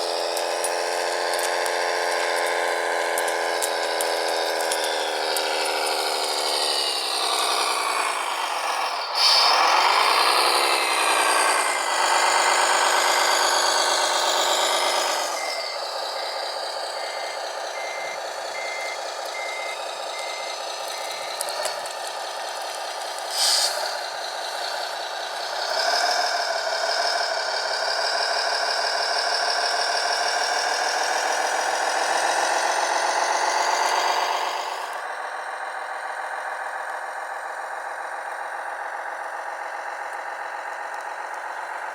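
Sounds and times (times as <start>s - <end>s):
electric motors whining: 0.0s - 23.4s
reversing beeper beeping: 9.5s - 21.9s.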